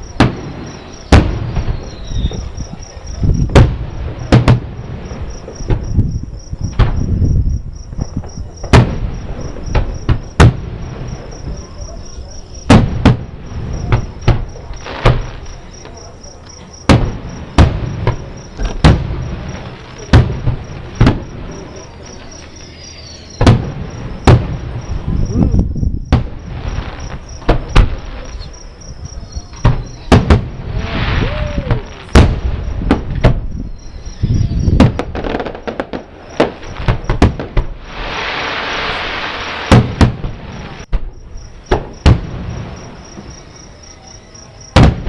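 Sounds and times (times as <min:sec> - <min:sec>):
distant fireworks bangs: 0:00.0 - 0:43.6, 0:44.6 - 0:45.0
crickets chirping: 0:00.0 - 0:45.0.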